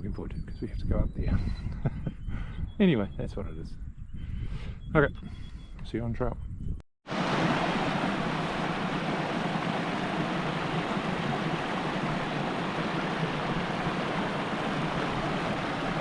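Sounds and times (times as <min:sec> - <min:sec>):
flowing stream water: 0:07.1 - 0:16.0.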